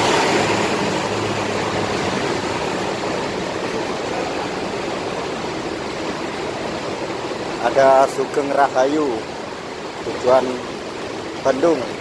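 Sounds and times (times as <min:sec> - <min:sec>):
bus engine passing: 0:00.0 - 0:08.0
rain hiss: 0:00.0 - 0:12.0.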